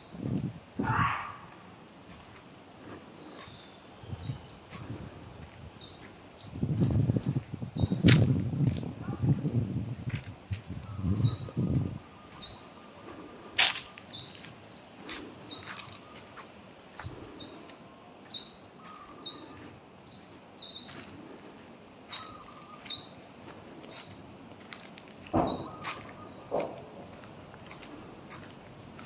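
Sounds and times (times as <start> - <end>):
small bird chirping: 22.1 - 23.2.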